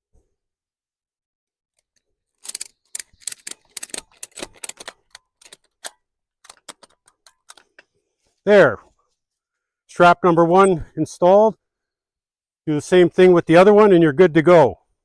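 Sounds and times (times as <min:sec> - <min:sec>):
ratchet strap clicking: 0:01.8 - 0:07.8.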